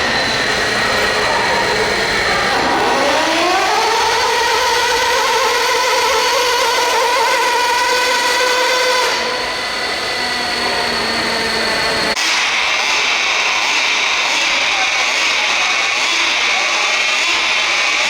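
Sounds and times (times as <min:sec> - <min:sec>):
electric motor whining: 0:00.0 - 0:16.5.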